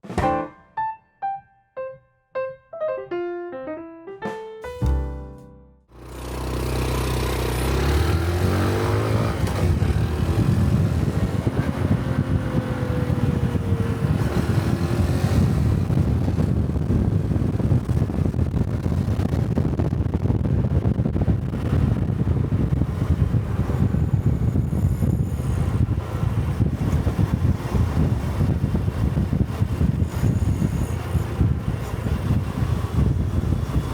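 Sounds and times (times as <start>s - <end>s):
motorcycle engine revving: 5.9s - 19.3s
road and wind noise: 5.9s - 33.9s.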